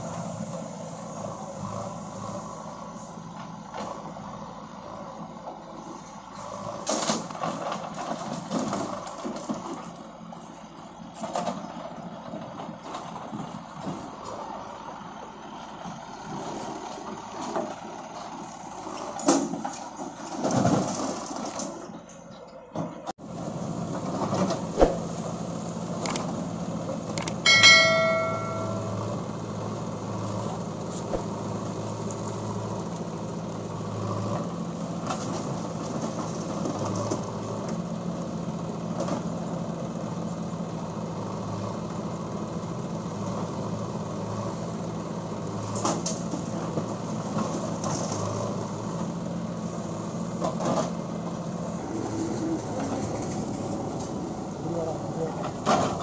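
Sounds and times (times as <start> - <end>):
diesel engines running: 0.0 - 56.0.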